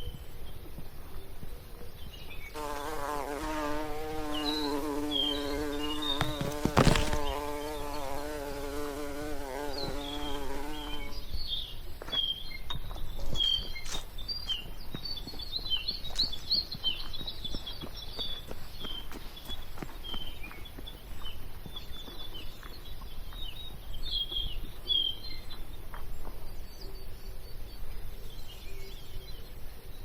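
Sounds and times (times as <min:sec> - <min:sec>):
small birds chirping: 0:00.0 - 0:30.0
flying insect buzzing: 0:02.6 - 0:11.2.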